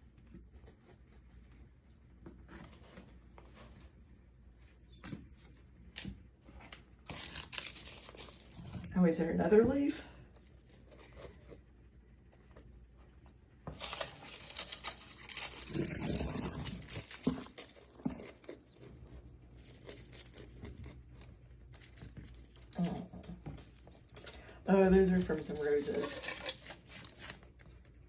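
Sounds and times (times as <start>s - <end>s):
dried leaves crackling and tearing: 7.0s - 8.9s, 13.6s - 27.8s.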